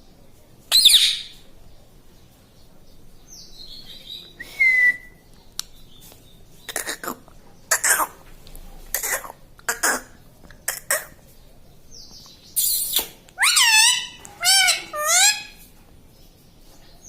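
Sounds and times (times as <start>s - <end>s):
parrot squawk: 0.7s - 1.3s, 12.6s - 15.6s
parrot chirps and clicks: 12.2s - 15.6s.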